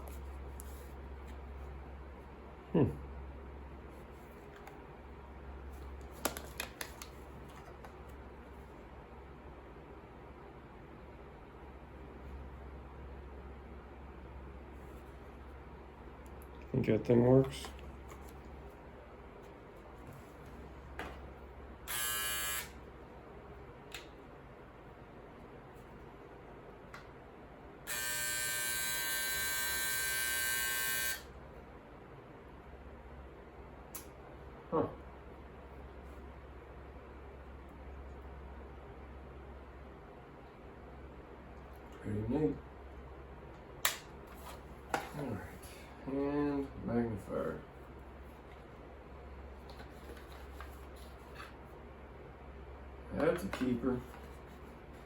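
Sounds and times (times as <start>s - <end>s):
low steady hum: 0.0s - 55.0s
electric shaver buzzing: 21.9s - 22.8s, 27.9s - 31.3s.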